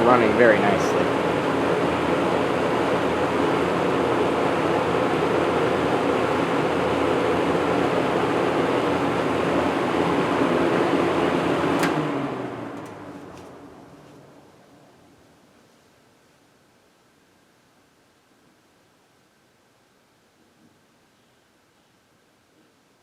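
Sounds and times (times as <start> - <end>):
box fan running: 0.0 - 15.5
fan switch click: 11.8 - 12.1.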